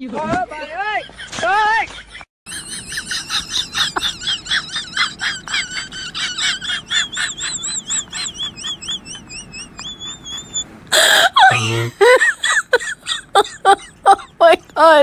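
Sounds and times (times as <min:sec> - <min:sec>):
bird-like warbled chirping: 0:02.5 - 0:10.7.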